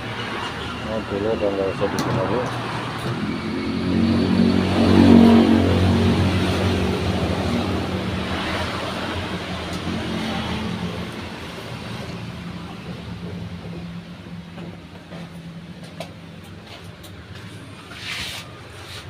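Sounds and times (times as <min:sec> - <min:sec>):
steady low traffic hum: 0:00.0 - 0:19.0
vehicle engine passing by: 0:01.7 - 0:12.0.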